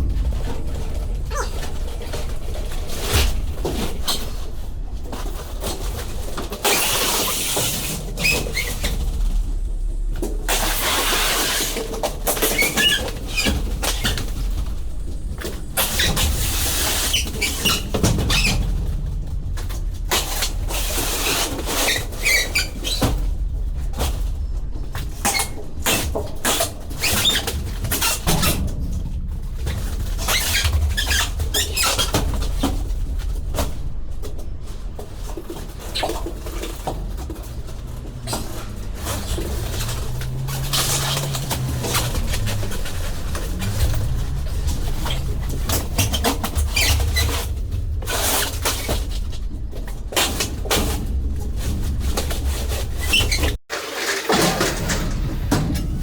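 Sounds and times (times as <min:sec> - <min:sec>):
steady low rumble: 0:00.0 - 0:53.6, 0:54.7 - 0:56.0
boxes scraping and knocking: 0:00.0 - 0:56.0.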